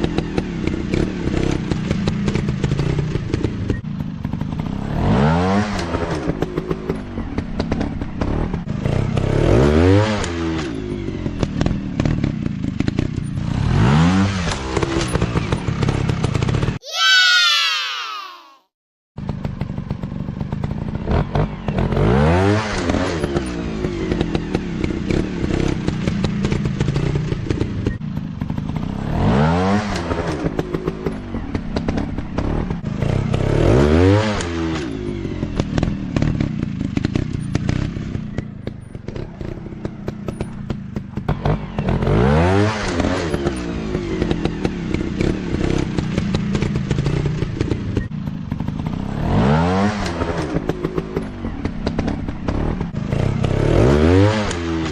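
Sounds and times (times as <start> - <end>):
dirt bike engine revving: 11.6 - 16.6, 28.4 - 34.9, 39.1 - 48.0, 48.6 - 54.9.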